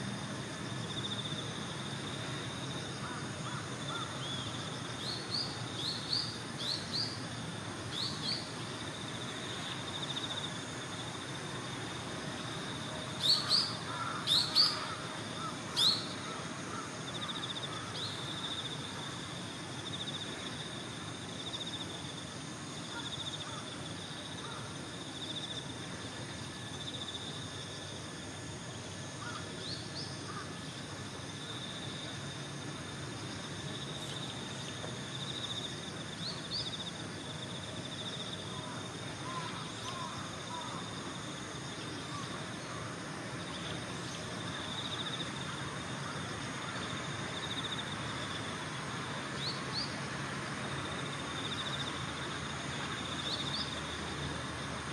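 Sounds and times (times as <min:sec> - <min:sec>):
insect chirring: 0:00.1 - 0:07.3, 0:07.9 - 0:11.3, 0:12.4 - 0:19.1.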